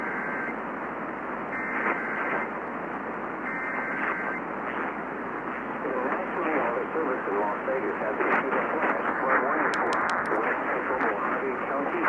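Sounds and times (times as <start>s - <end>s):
radio hiss: 3.6s - 12.0s.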